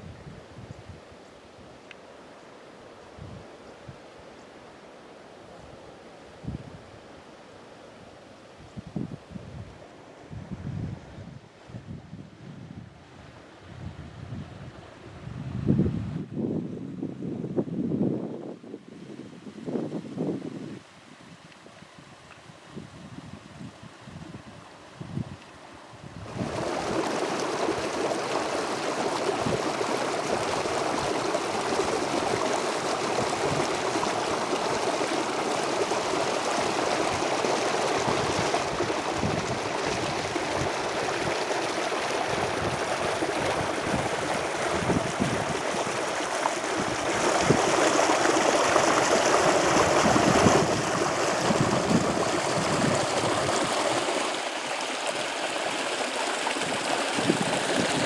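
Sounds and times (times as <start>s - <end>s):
water rushing and gurgling: 26.2s - 58.0s.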